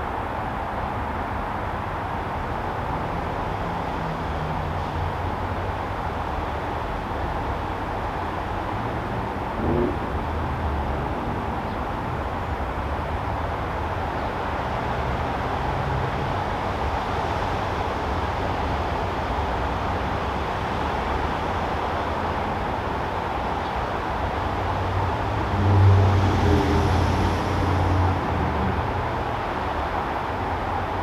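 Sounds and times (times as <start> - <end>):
distant road traffic rumble: 2.5 - 31.0
vehicle passing: 24.4 - 30.2.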